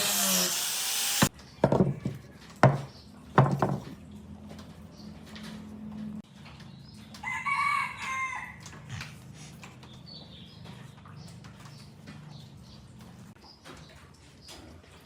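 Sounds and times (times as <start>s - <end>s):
rooster crowing: 7.2s - 8.7s.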